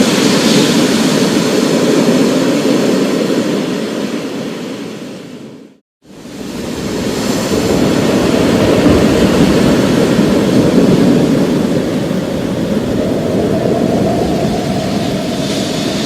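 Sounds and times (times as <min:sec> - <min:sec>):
rain hiss: 0:06.1 - 0:16.0
deep thunder rumbling: 0:06.7 - 0:16.0.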